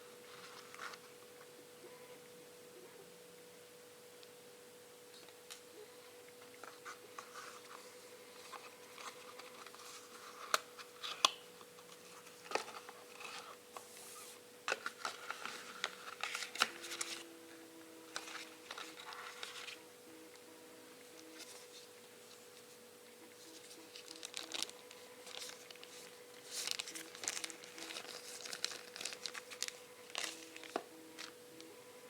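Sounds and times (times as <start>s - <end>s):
packaging rustling and crinkling: 6.6s - 14.0s, 14.7s - 17.3s, 18.1s - 19.8s, 23.5s - 31.4s.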